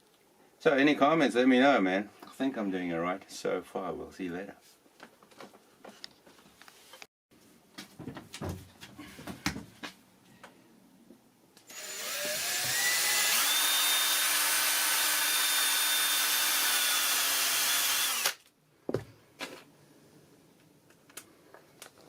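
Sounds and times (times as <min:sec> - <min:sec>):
power tool motor spinning: 0:11.7 - 0:18.4.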